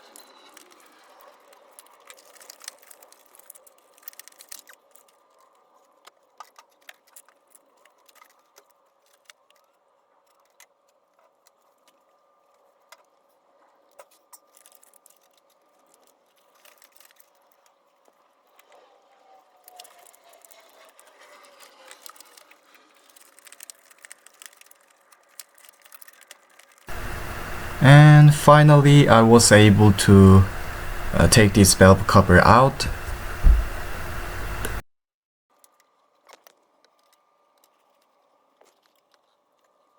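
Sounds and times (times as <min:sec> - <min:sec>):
faint steady hum: 0:26.9 - 0:34.8.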